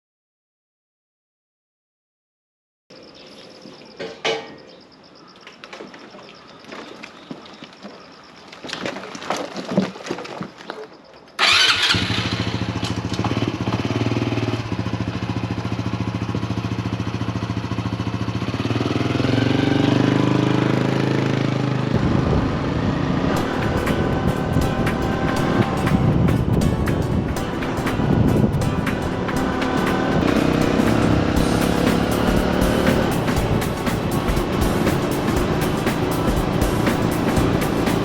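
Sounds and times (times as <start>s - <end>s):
motorcycle engine running: 11.4s - 38.0s.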